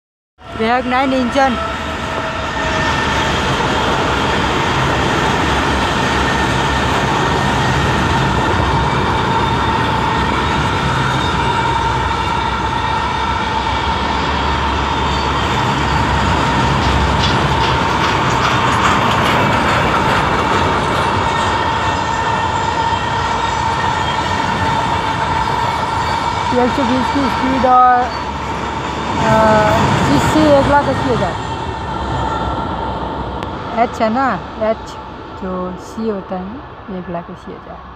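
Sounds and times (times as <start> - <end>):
steel wheels clattering on rail: 14.4 - 26.4.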